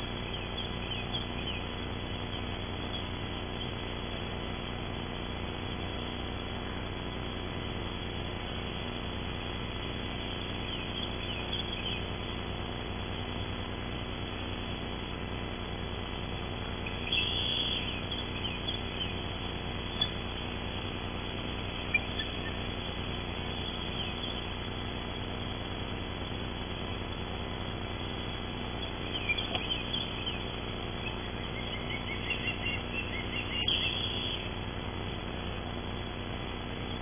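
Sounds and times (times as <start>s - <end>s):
microphone hiss and electrical hum: 0.0s - 37.0s
high bird chirps: 0.2s - 1.7s, 10.5s - 12.1s, 16.8s - 19.2s, 19.8s - 20.3s, 21.7s - 24.6s, 28.8s - 34.5s.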